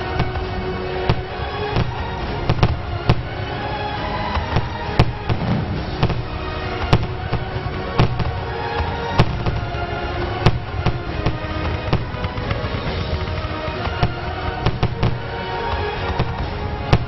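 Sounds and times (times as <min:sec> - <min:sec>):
fireworks bangs: 0:00.0 - 0:17.0
music with held notes: 0:00.0 - 0:17.0
low rumble: 0:05.1 - 0:08.5.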